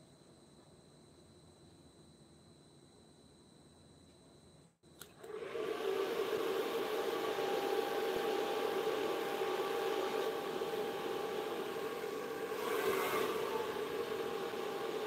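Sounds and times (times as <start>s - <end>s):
electric motor whirring whine: 5.2s - 15.0s.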